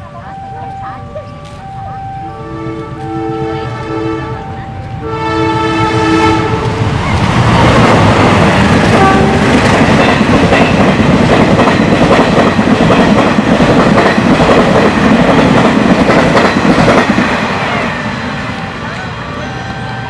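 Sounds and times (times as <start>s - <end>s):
train horn: 2.3s - 6.8s, 8.8s - 9.6s
train wheels rumbling and clattering: 3.7s - 20.0s.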